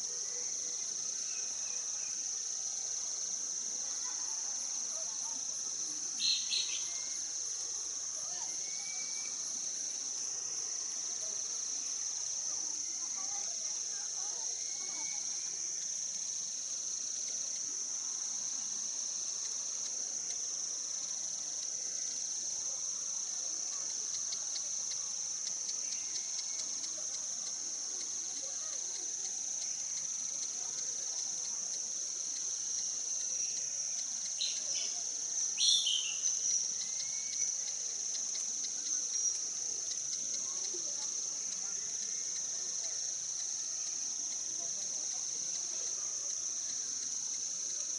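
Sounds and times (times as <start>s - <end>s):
insects droning: 0.0s - 47.9s
bird chirps: 6.2s - 7.2s, 35.6s - 37.4s.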